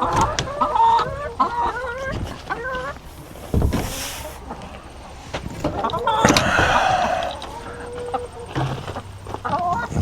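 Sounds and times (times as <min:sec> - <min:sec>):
chickens clucking: 0:00.0 - 0:10.0
rustle: 0:02.0 - 0:10.0
dull thump: 0:03.5 - 0:04.1.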